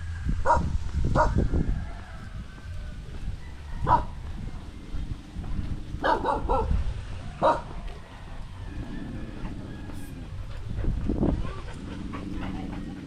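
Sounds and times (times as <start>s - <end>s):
low rumble: 0.0s - 13.0s
dog barking: 0.4s - 1.4s, 3.8s - 4.2s, 6.0s - 6.8s, 7.4s - 7.8s.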